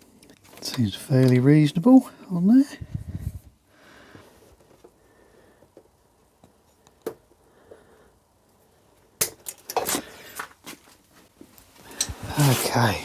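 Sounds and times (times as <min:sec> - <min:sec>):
tools clinking and clattering: 0:11.9 - 0:12.7.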